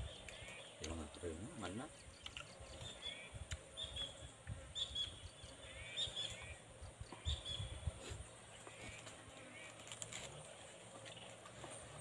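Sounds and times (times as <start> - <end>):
bird chirping calls: 1.9 - 7.8.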